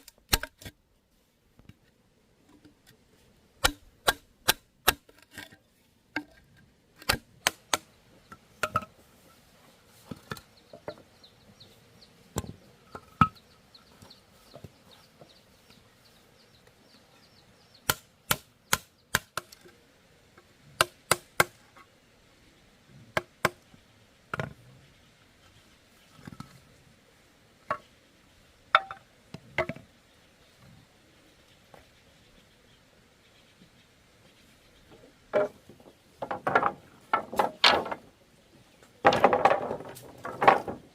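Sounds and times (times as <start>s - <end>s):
blade chopping bamboo: 3.6s - 5.4s.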